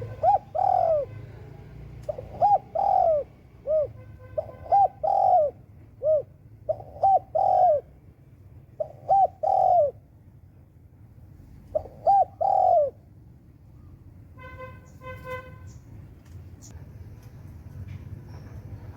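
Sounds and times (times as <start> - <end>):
dove cooing: 0.0 - 1.4, 2.0 - 8.0, 8.7 - 10.0, 11.6 - 13.1
small birds chirping: 14.8 - 16.8.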